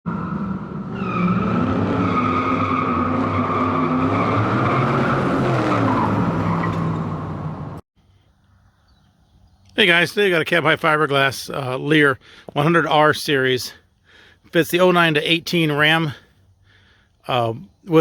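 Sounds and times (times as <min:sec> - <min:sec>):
car engine revving: 0:00.1 - 0:07.8
car tyres squealing: 0:00.1 - 0:07.8.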